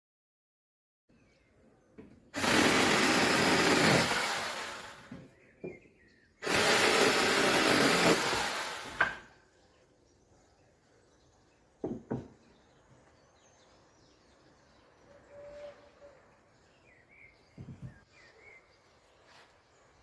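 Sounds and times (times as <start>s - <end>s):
mini chainsaw cutting wood: 2.4s - 5.2s, 6.4s - 9.3s.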